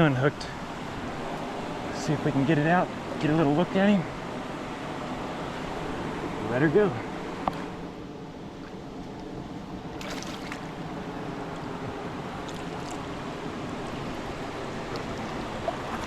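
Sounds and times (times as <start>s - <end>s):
creek water running: 8.5s - 16.0s
water splash: 10.0s - 10.9s, 14.9s - 16.0s.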